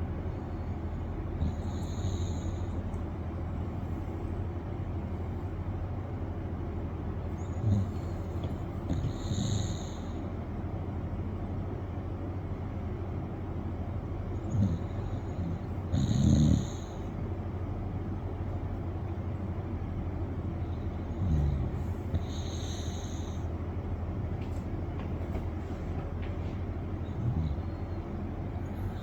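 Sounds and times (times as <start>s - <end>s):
dog snoring with whistling edge: 8.9s - 10.1s, 14.5s - 17.0s.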